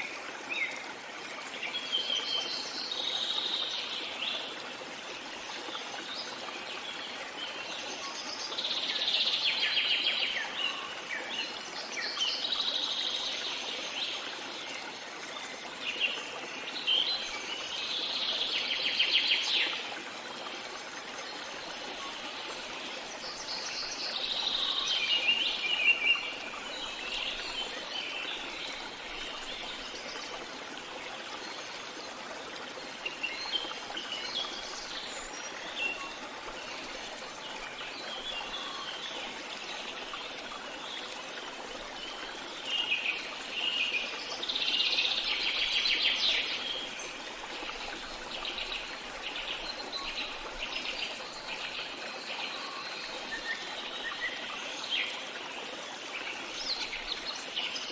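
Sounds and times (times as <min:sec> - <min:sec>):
stream trickling: 0:00.0 - 0:57.9.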